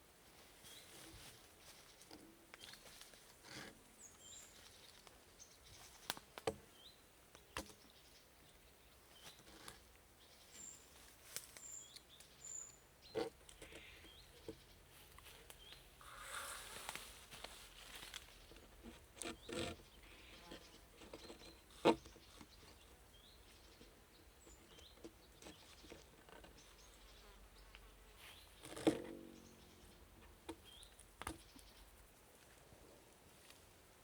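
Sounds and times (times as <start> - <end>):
bird chirps: 28.3 - 32.0.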